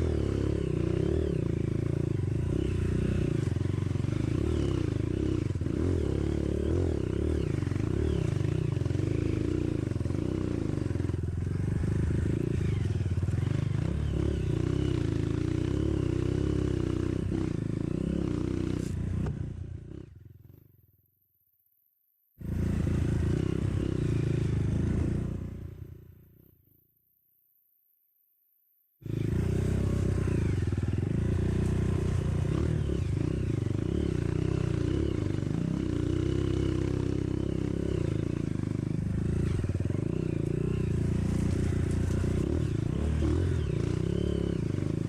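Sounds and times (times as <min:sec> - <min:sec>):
motorcycle engine revving: 0:00.0 - 0:20.8, 0:22.4 - 0:26.5, 0:29.0 - 0:45.0
clatter over rough ground: 0:40.4 - 0:44.0.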